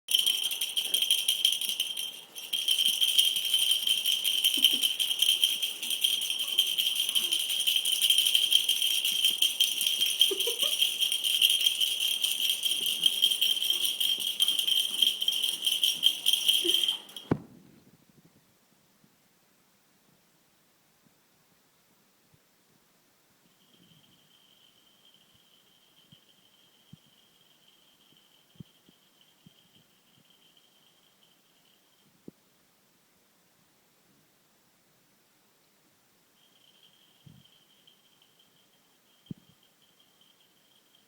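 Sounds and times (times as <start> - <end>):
rattle shaken fast: 0.1 - 17.3.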